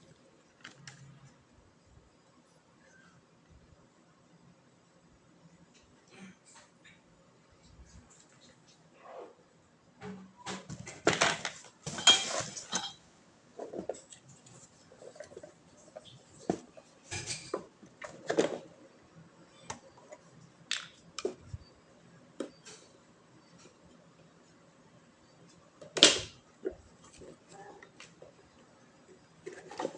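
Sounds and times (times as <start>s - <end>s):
metal bike parts clattering: 11.0s - 13.0s.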